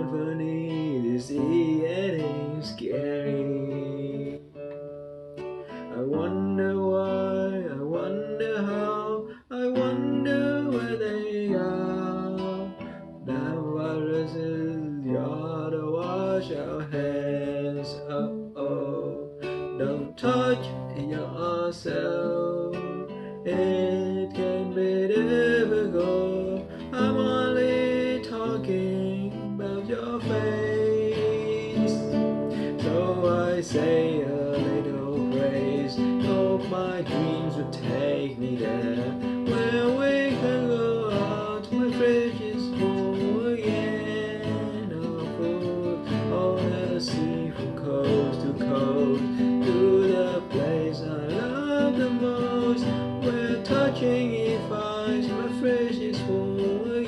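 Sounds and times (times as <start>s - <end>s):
person singing: 0.0s - 57.0s
strummed acoustic guitar: 0.0s - 57.0s.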